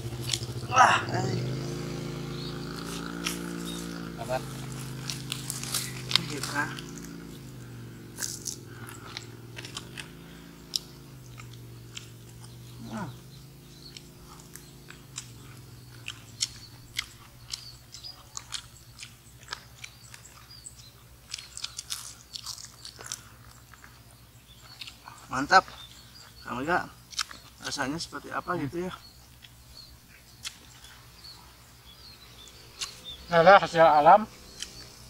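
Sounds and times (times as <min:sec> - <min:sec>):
steady low hum: 0:00.0 - 0:35.0
crisp crunching while chewing: 0:02.8 - 0:07.4, 0:08.2 - 0:10.1, 0:13.9 - 0:24.0, 0:27.1 - 0:27.6.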